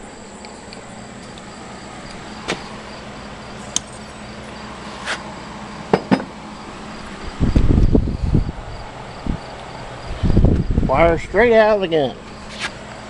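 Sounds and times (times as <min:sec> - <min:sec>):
steady electrical hum: 0:00.0 - 0:13.0
tools and wire clicking: 0:00.4 - 0:01.5, 0:03.7 - 0:04.2.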